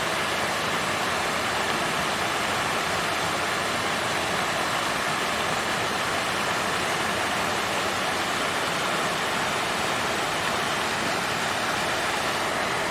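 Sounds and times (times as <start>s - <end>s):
water fountain splashing: 0.0s - 12.9s.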